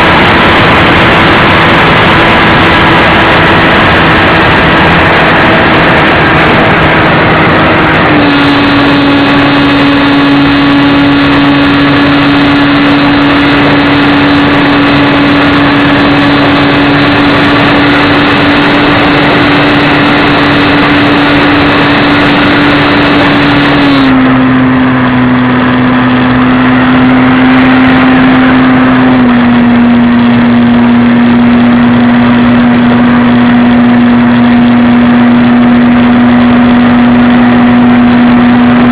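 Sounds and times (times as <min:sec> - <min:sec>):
rush of air: 0:00.0 - 0:29.7
model airplane engine running: 0:00.0 - 0:38.9.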